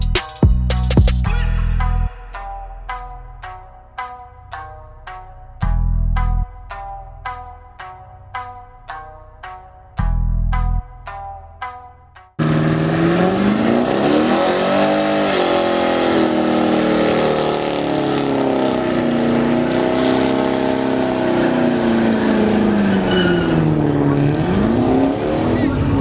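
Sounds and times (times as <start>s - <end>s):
truck engine revving: 12.4s - 26.0s.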